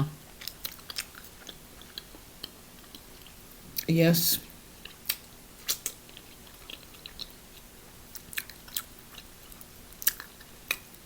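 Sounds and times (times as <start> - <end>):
close chewing with mouth clicks: 0.2 - 3.9, 4.6 - 11.0
wet mouth clicks and smacks: 0.4 - 3.9, 4.8 - 7.4, 10.0 - 10.9.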